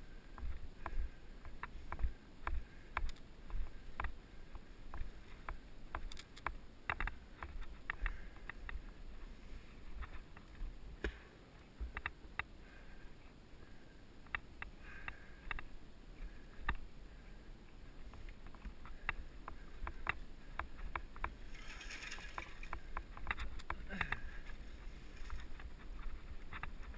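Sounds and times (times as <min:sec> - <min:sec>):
bike clicks and rattles: 0:04.9 - 0:08.9, 0:18.1 - 0:26.9.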